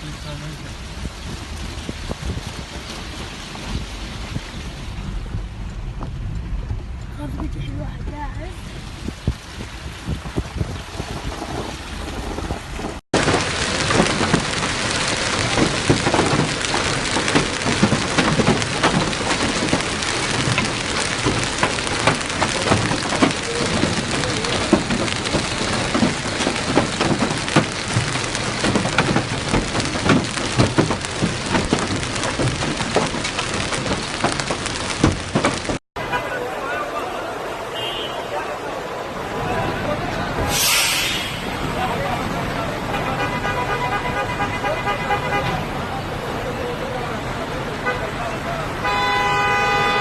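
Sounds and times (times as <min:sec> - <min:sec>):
heavy rain pouring: 0:00.0 - 0:50.0.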